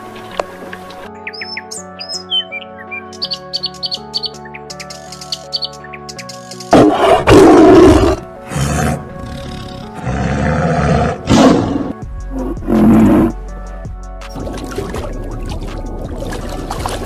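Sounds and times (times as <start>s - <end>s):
background music: 0.0s - 17.0s
tiger roaring: 6.7s - 13.4s.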